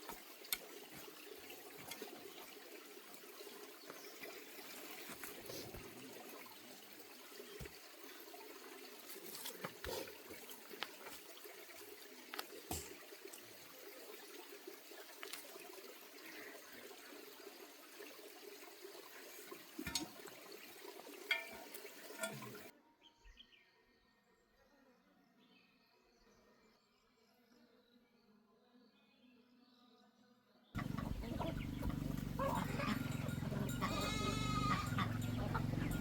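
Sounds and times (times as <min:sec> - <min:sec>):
water trickling: 0:00.0 - 0:22.7, 0:30.8 - 0:36.0
bird chirps: 0:30.8 - 0:36.0.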